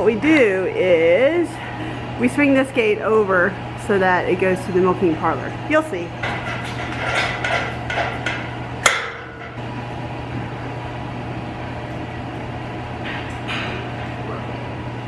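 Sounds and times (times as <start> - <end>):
metal gate clanking and rattling: 6.2 - 9.6.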